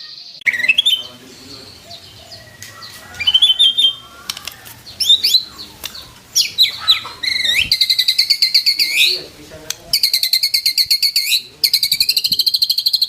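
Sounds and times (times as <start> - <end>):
bird singing whistled phrases: 0.0 - 2.6, 5.0 - 9.2, 9.9 - 13.0.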